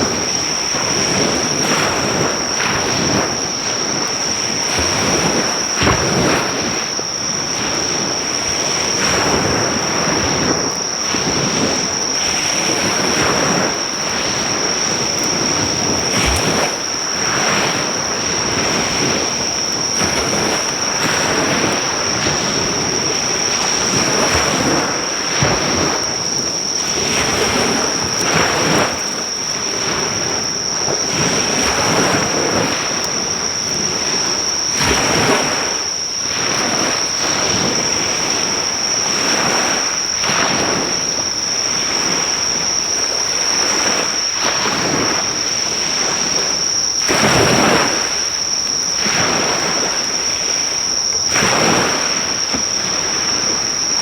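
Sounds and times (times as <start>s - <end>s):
insects trilling: 0.0s - 54.0s
sea waves washing ashore: 0.0s - 54.0s.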